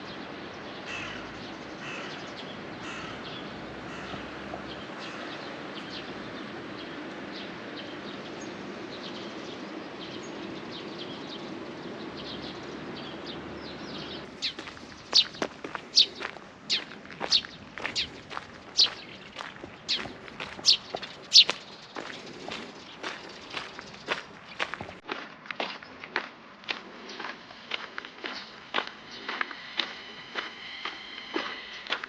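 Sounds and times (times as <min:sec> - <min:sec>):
birds chirping and calling: 0:00.8 - 0:25.0.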